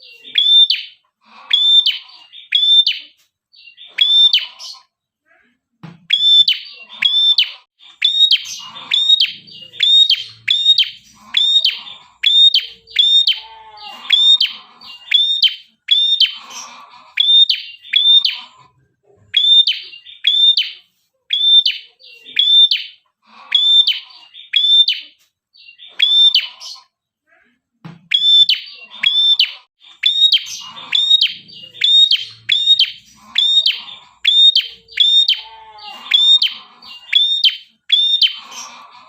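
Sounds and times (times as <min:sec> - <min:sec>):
fainter lower bird calls: 0:00.0 - 0:05.0, 0:06.1 - 0:18.7, 0:28.1 - 0:39.0
bird singing sharp high chirps: 0:06.1 - 0:13.5, 0:28.1 - 0:38.4.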